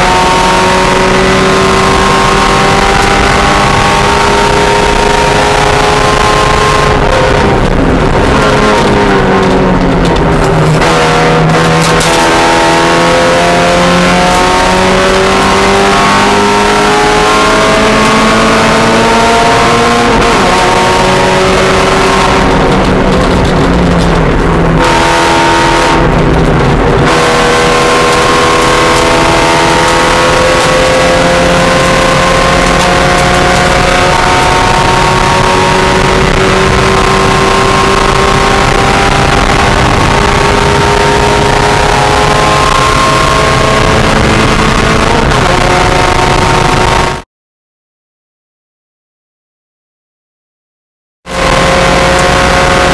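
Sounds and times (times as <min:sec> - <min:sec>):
race car engine at high revs: 0:00.0 - 0:47.2, 0:51.2 - 0:52.9.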